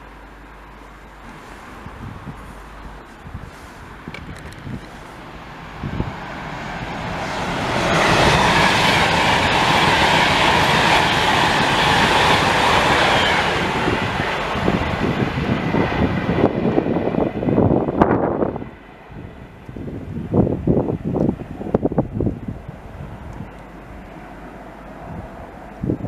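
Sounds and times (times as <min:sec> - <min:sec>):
train wheels on rails: 0:00.0 - 0:26.0
wind buffeting microphone: 0:00.8 - 0:26.0.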